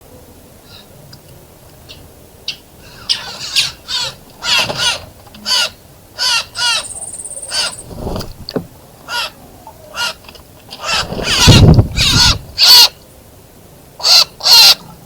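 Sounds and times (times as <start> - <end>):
bird cawing: 2.8 - 7.9, 10.8 - 13.0.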